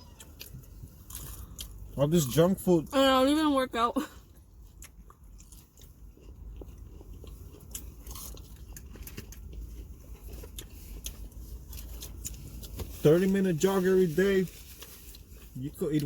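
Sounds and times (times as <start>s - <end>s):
person chewing crunchy food: 0.0s - 2.3s, 4.3s - 12.9s.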